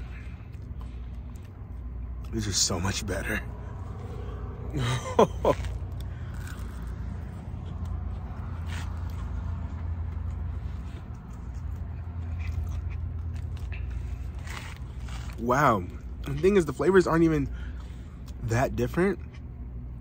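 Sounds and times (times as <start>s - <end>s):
steady low hum: 0.0s - 20.0s
chewing crispy food: 3.8s - 16.5s.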